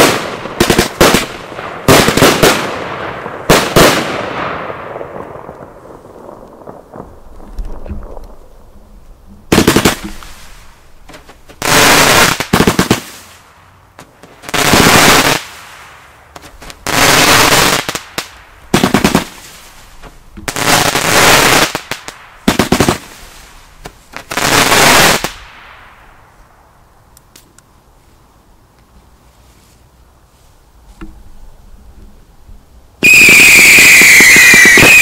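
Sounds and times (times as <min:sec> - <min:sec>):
fireworks crackling bangs: 0:00.0 - 0:26.3, 0:33.0 - 0:35.0.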